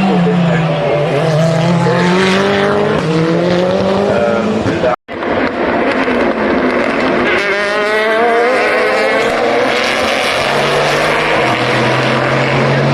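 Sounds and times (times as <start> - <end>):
race car engine accelerating: 0.0 - 12.9.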